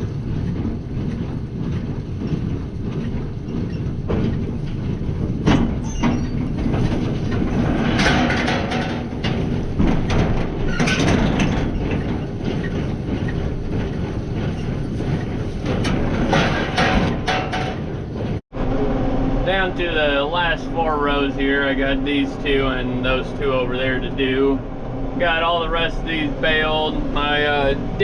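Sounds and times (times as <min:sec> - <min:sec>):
baler knocking and clattering: 0:00.0 - 0:18.4
tractor engine drone: 0:00.0 - 0:28.0.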